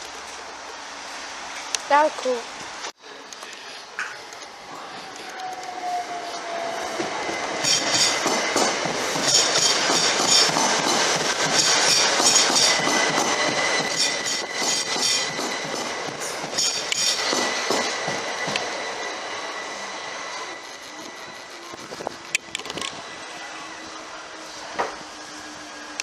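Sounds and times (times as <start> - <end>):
train wheels clicking over rails: 3.3 - 23.1
high-pitched wheel squeal: 4.7 - 8.2.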